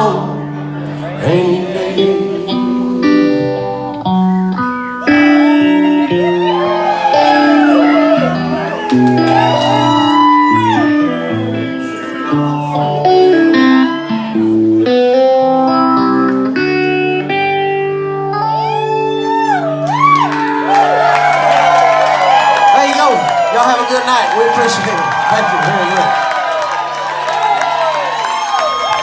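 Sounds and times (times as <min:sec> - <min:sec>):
guitar lead with bending notes: 0:00.0 - 0:22.4
live band playing: 0:01.3 - 0:21.4.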